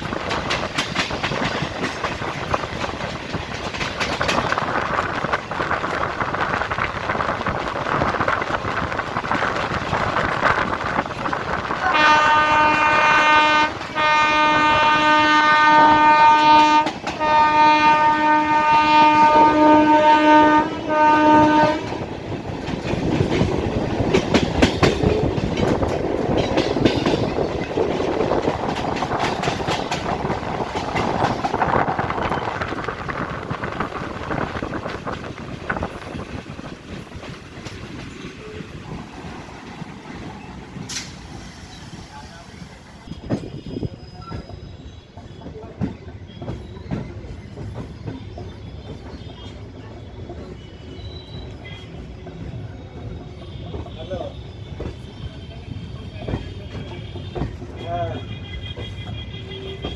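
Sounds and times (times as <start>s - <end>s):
train wheels clicking over rail joints: 0.0s - 59.9s
train horn blasts: 11.8s - 22.1s, 53.4s - 59.9s.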